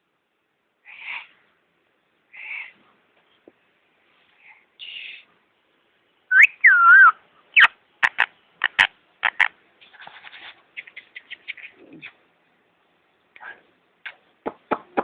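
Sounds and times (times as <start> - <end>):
parrot whistling: 6.3 - 7.7
parrot chirps: 6.3 - 9.5
parrot clicking chatter: 7.6 - 9.5.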